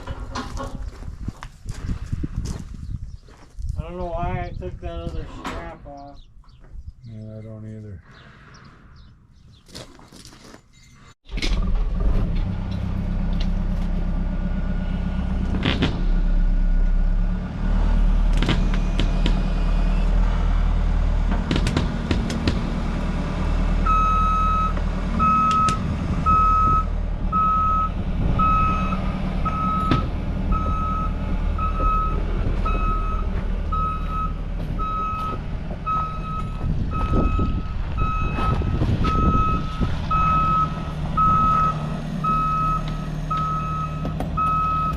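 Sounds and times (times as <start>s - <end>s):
heavy diesel machine running: 11.3s - 44.9s
back-up alarm beeping: 23.9s - 44.9s.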